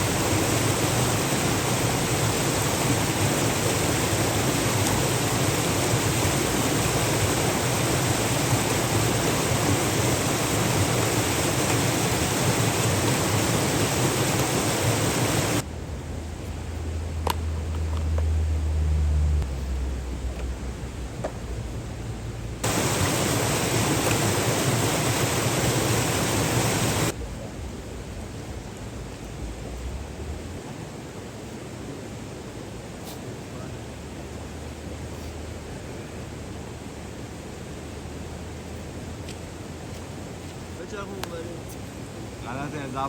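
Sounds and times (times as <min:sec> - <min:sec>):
steady rushing noise: 0:00.0 - 0:16.1, 0:22.6 - 0:32.6
low hum: 0:00.0 - 0:30.6.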